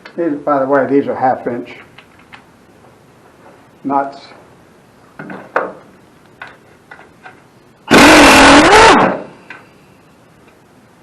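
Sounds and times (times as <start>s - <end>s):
impact wrench burst: 7.9s - 9.4s.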